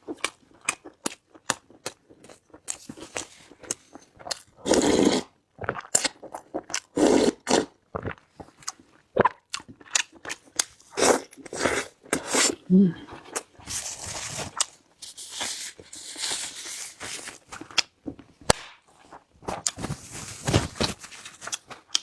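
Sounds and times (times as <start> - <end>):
wet chewing clicks: 21.5 - 22.0.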